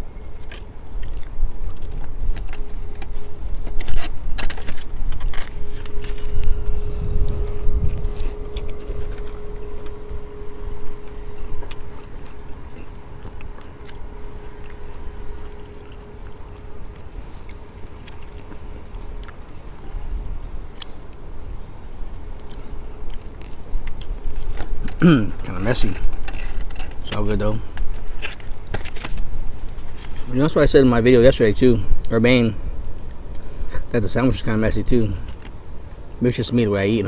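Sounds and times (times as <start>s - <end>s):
faint hum: 0.0s - 37.0s
person chewing: 0.3s - 25.2s
low rumble: 1.4s - 22.3s.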